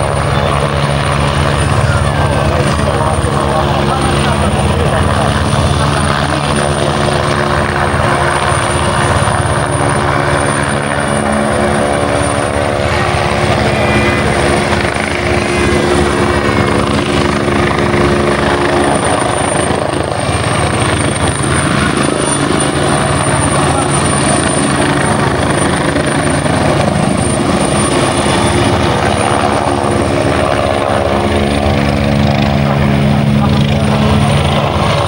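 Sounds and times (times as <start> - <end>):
helicopter rotor and engine hum: 0.0 - 35.0
thin high whine: 10.5 - 18.2.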